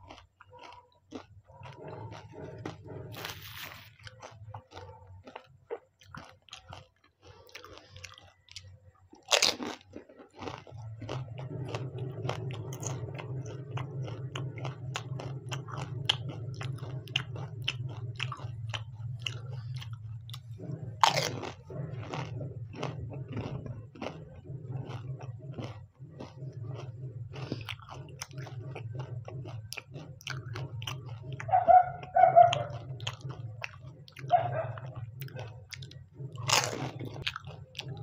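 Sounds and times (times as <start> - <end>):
crunching bites into shells: 0.0 - 19.9, 21.0 - 24.2, 32.6 - 38.0
low steady hum: 0.0 - 38.0
wet chewing: 0.0 - 38.0.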